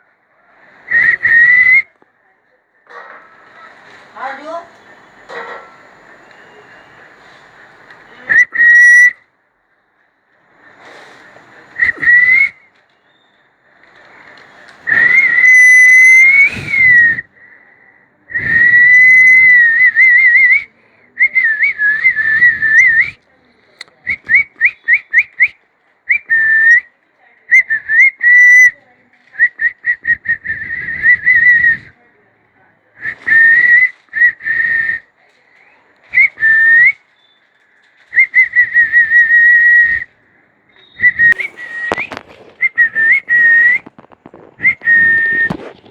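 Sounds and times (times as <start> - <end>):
person whistling: 11.7 - 12.7, 14.8 - 17.3, 18.3 - 23.2, 40.7 - 45.8.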